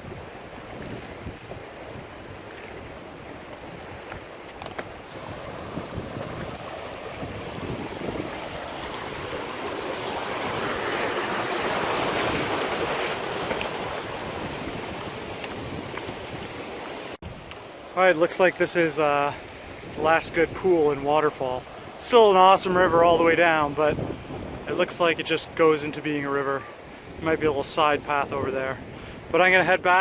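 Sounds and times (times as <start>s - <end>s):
wind buffeting microphone: 0.0s - 17.5s, 22.7s - 24.7s
water rushing over waterfall: 4.6s - 15.6s.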